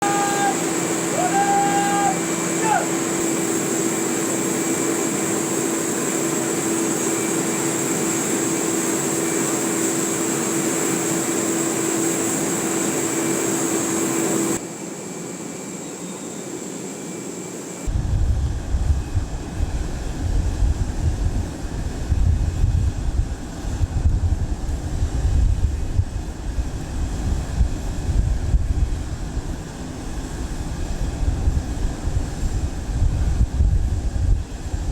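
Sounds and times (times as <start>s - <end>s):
jet engines whining: 0.0s - 34.9s
wind buffeting microphone: 17.9s - 34.9s.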